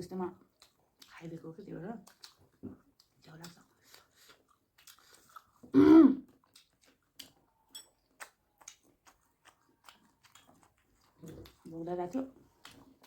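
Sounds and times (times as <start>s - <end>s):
faint eating clicks: 0.3s - 5.7s, 6.3s - 13.0s
person clearing throat: 5.7s - 6.3s.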